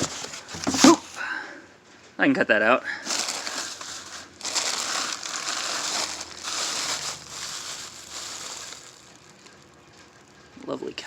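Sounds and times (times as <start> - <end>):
packing wrap crinkling: 0.0 - 1.3, 3.0 - 10.4.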